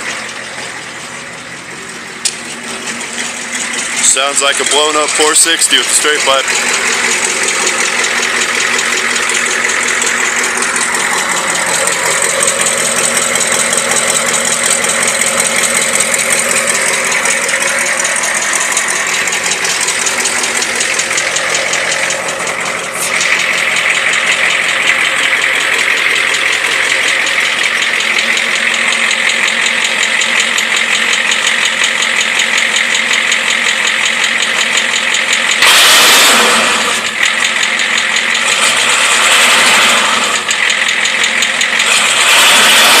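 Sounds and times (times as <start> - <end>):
diesel truck engine idling: 0.0 - 43.0
engine revving burst: 3.7 - 27.6, 35.6 - 37.3, 38.4 - 40.6, 41.8 - 43.0.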